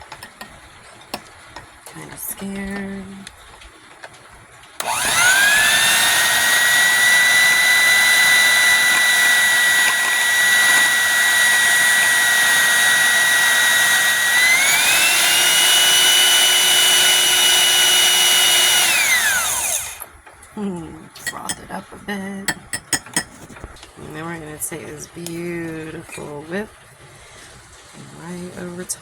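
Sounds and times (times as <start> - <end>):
blender motor whining: 4.8 - 20.1.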